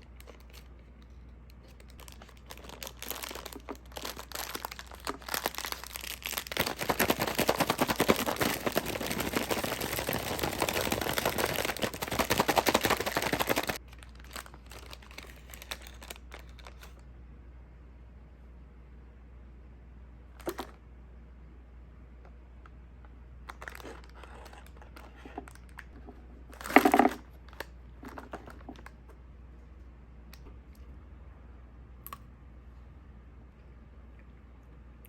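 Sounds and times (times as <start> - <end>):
crinkling and crackling: 0.0 - 17.0, 22.6 - 29.2.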